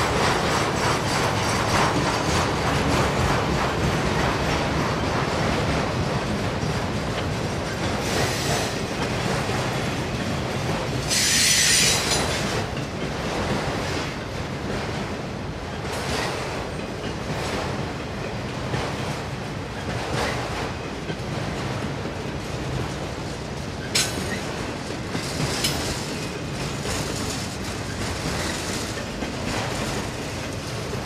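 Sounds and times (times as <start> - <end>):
train wheels rumbling on rails: 0.0 - 31.0
high wheel screeches: 11.1 - 12.1.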